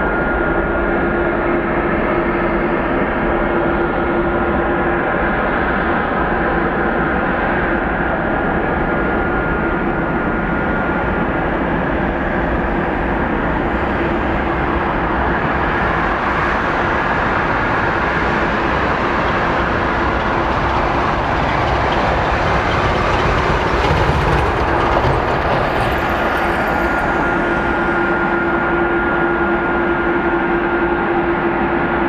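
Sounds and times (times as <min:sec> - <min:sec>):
jet engines idling: 0:06.4 - 0:30.6.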